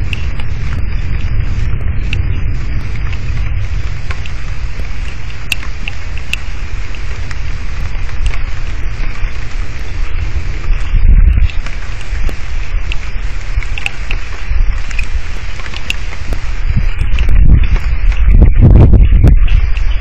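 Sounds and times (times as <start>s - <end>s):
heavy rain hissing: 0.0s - 20.0s
low rumble: 0.0s - 20.0s
raindrops ticking near microphone: 0.0s - 20.0s.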